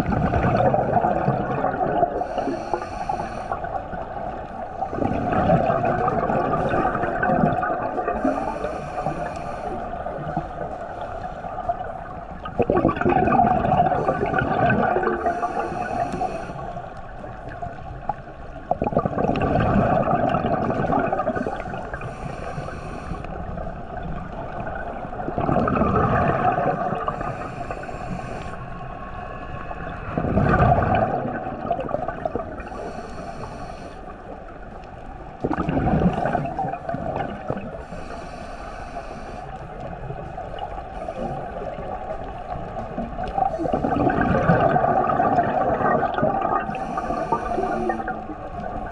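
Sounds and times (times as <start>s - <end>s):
exhaled bubbles gurgling: 0.0s - 48.9s
regulator hissing inhale: 2.1s - 5.6s, 8.1s - 11.5s, 13.8s - 17.1s, 21.3s - 23.8s, 26.8s - 29.4s, 32.5s - 34.6s, 37.6s - 39.8s, 43.3s - 44.1s, 46.6s - 48.5s.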